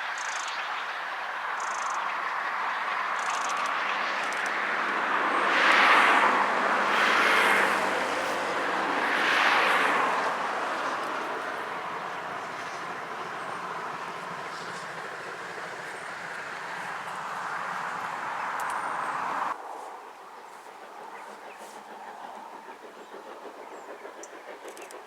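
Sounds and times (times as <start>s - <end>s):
train passing: 0.0s - 25.0s.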